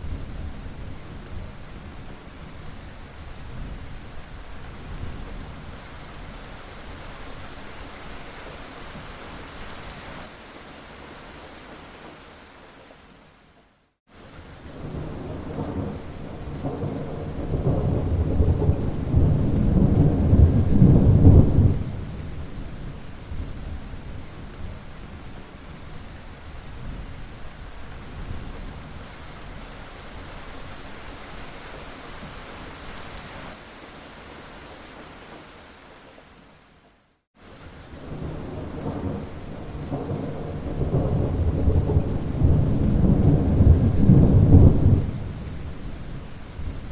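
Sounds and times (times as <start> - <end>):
steady rain: 0.0 - 46.9
rolling thunder: 14.7 - 24.2, 38.0 - 46.9.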